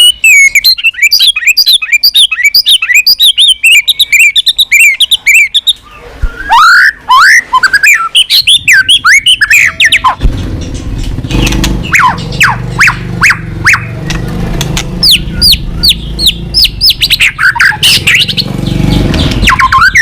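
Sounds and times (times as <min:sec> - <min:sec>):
bird singing varied song: 0:00.0 - 0:20.0
low steady rumble: 0:08.3 - 0:19.9.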